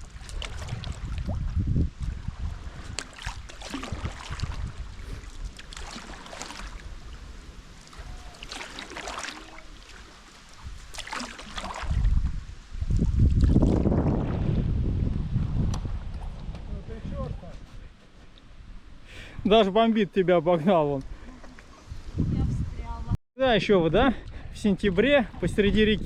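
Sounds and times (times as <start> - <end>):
wind on microphone: 0.0 - 6.0, 10.5 - 19.5, 21.0 - 23.2, 24.0 - 26.0
paddle splashing in water: 0.0 - 12.3.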